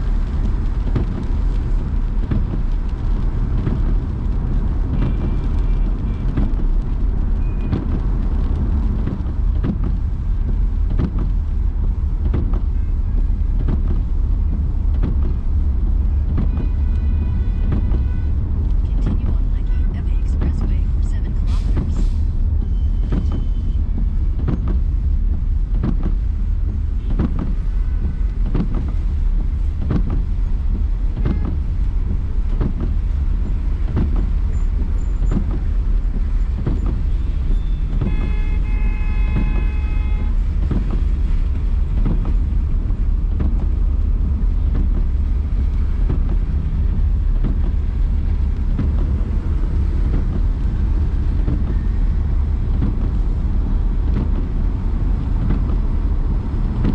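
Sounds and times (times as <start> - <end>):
car driving rumble: 0.0 - 56.9
vehicle horn: 16.4 - 18.4, 37.6 - 40.5.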